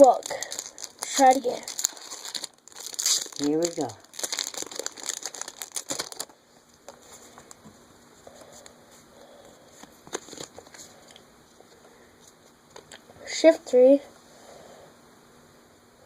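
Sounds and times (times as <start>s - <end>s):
foil wrapper crinkling and tearing: 0.0s - 6.4s, 10.1s - 10.8s.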